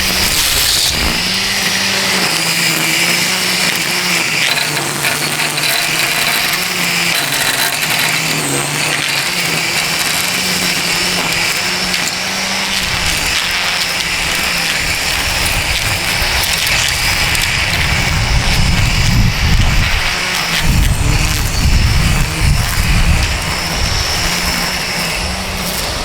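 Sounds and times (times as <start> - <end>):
string trimmer whirring: 0.0 - 26.0.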